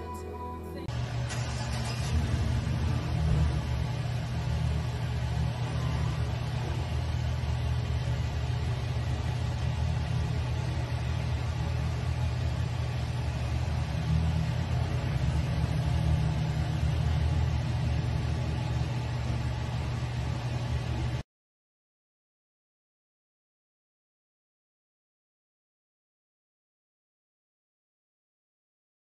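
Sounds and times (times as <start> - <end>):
car interior engine and road noise: 0.9 - 21.1.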